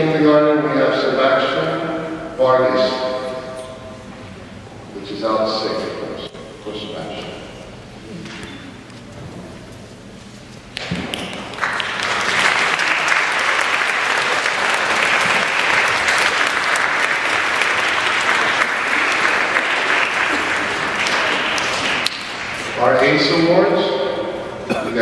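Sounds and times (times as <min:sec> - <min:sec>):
audience clapping: 0:10.7 - 0:23.1.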